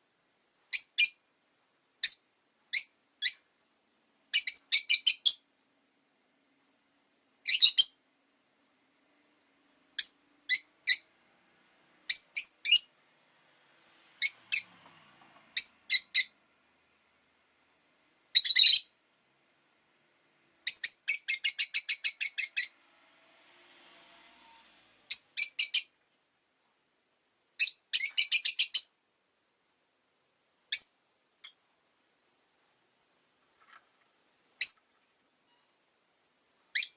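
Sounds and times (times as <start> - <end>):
lovebirds chirping: 0.7 - 1.3, 2.0 - 3.5, 4.3 - 5.5, 7.4 - 8.1, 9.9 - 11.2, 12.0 - 13.0, 14.2 - 14.7, 15.5 - 16.4, 18.3 - 19.0, 20.6 - 22.8, 24.4 - 26.0, 27.6 - 29.0, 30.7 - 31.6, 33.6 - 35.8, 36.6 - 36.9.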